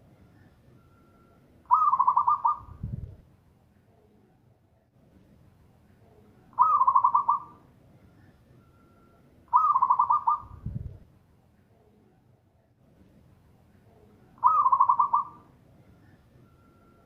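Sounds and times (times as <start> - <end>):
dove cooing: 1.7 - 2.8, 6.6 - 7.6, 9.5 - 10.6, 14.4 - 16.2.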